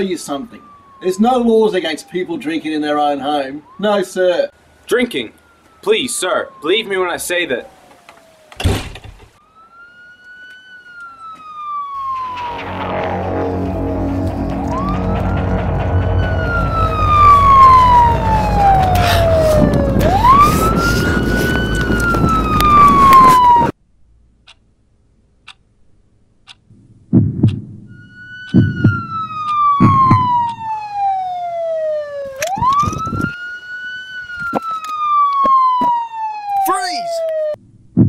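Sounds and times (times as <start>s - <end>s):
police siren wailing: 0.0s - 8.6s, 9.4s - 23.8s, 27.9s - 37.6s
low steady drone: 12.0s - 23.1s
heavy thumps: 12.0s - 23.5s, 27.1s - 27.7s.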